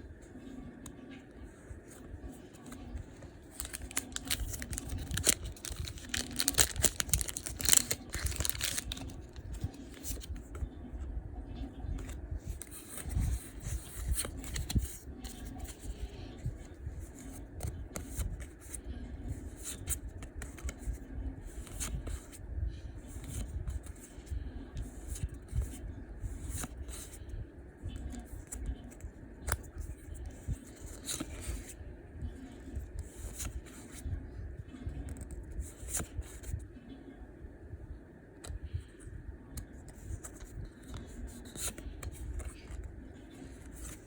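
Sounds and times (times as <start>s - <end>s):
cards being handled: 1.8s - 10.6s, 12.0s - 16.2s, 19.5s - 22.4s, 26.4s - 27.2s, 28.1s - 31.8s, 33.0s - 34.0s, 39.9s - 44.0s
foil wrapper tearing and crinkling: 3.5s - 9.5s.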